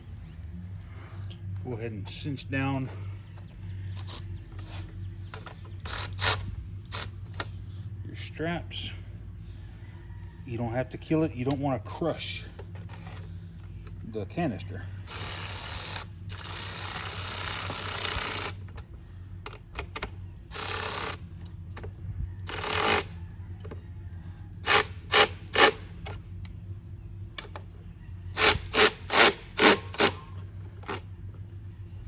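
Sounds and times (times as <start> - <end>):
cordless power tool running: 22.5 - 23.1, 24.6 - 25.8, 28.4 - 30.3.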